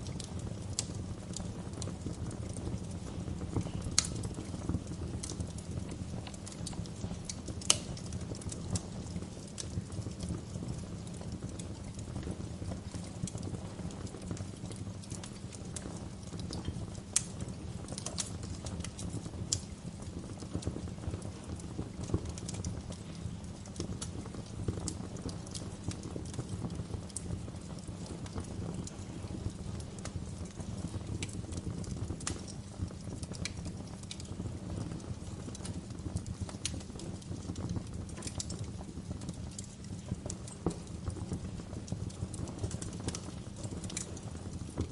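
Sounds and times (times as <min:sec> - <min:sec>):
fire crackling and popping: 0:00.0 - 0:44.9
flames rumbling: 0:00.0 - 0:44.9.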